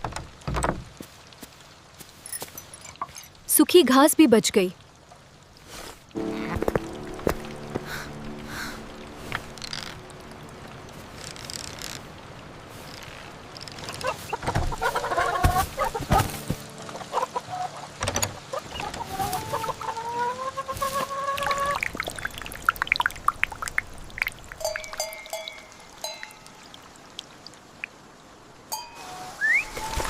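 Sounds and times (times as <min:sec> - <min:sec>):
knocks and clatter: 0:00.0 - 0:01.0, 0:18.0 - 0:19.4
chickens clucking and calling: 0:14.0 - 0:21.8.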